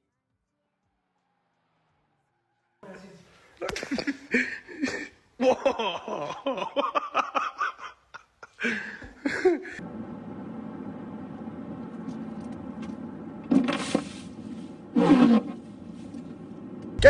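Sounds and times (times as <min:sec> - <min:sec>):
person laughing: 0:03.6 - 0:09.8
steady low hum: 0:09.3 - 0:17.0.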